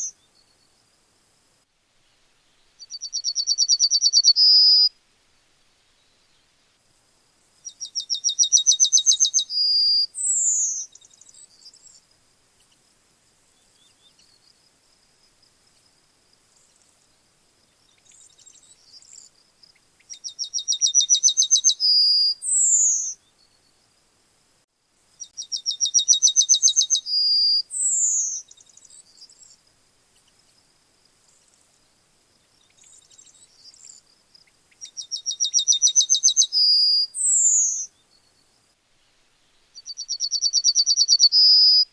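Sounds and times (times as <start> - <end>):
yellowhammer singing: 0.0 - 0.7, 2.8 - 4.9, 7.6 - 12.0, 17.8 - 23.7, 25.2 - 29.6, 32.6 - 38.5, 39.7 - 41.9
faint bird chirps: 0.0 - 0.9, 2.0 - 5.0, 5.9 - 6.6, 7.5 - 24.0, 25.1 - 41.9.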